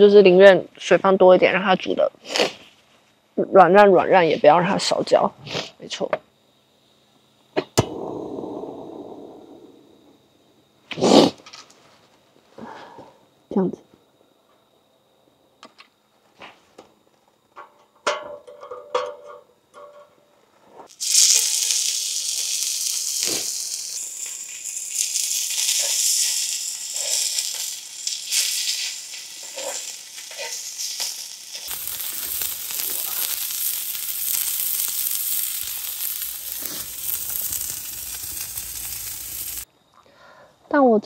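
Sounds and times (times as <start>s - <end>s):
meat sizzling in a hot pan: 20.9s - 39.7s.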